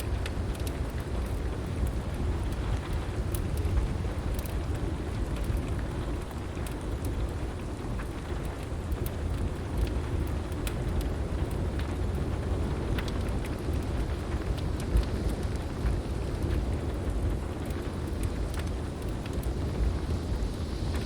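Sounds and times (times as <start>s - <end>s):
heavy rain falling: 0.0s - 21.0s
wood fire crackling: 0.0s - 21.0s
thunder rumble: 10.8s - 21.0s.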